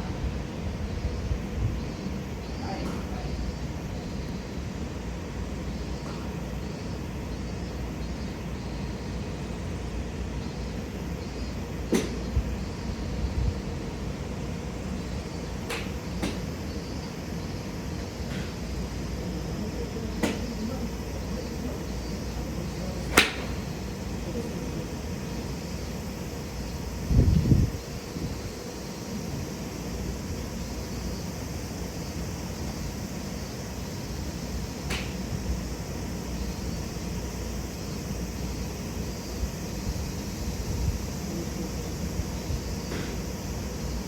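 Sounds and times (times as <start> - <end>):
steady background hum: 0.0 - 44.0
golf clubs striking balls: 11.9 - 12.3, 15.6 - 16.6, 20.2 - 20.6, 22.6 - 24.6, 34.8 - 35.3.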